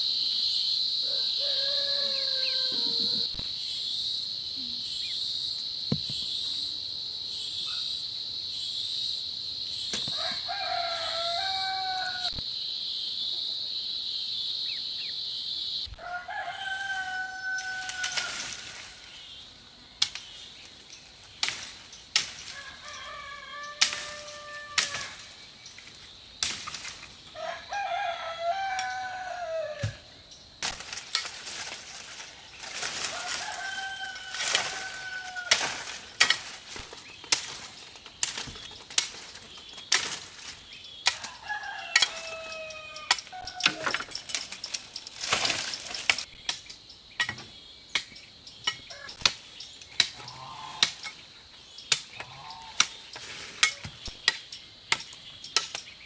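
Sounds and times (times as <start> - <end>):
rooster crowing: 1.0 - 3.4, 10.1 - 12.4, 15.9 - 18.8, 22.5 - 25.3, 27.3 - 30.1, 33.0 - 35.8, 41.2 - 44.0.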